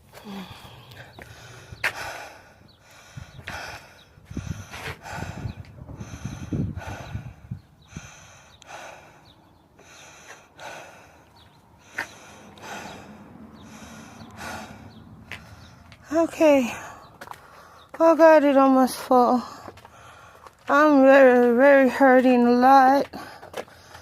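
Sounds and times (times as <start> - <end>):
woman breathing hard: 0.0 - 16.1, 16.7 - 18.0, 19.4 - 20.7.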